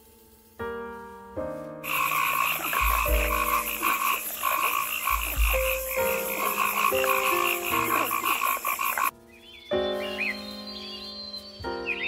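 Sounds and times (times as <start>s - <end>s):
frog croaking: 1.8s - 9.1s.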